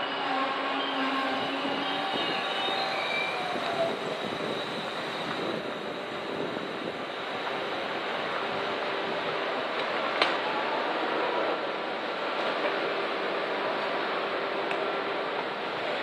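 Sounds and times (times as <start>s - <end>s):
faint squeals: 0.0s - 5.5s
train rumbling hiss: 0.0s - 16.0s.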